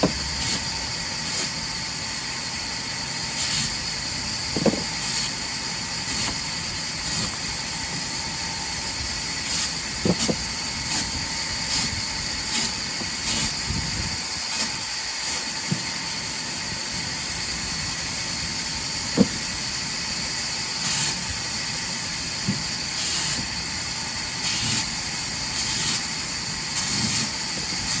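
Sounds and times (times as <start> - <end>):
sawmill machine hissing: 0.0 - 28.0
sharp knocks: 4.6 - 4.9.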